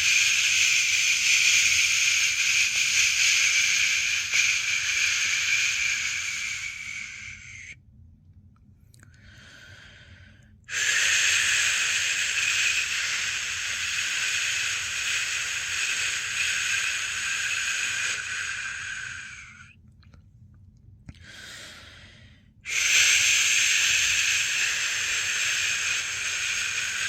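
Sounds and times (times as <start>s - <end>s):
person shushing: 0.0s - 7.7s, 10.7s - 19.7s, 22.7s - 27.0s.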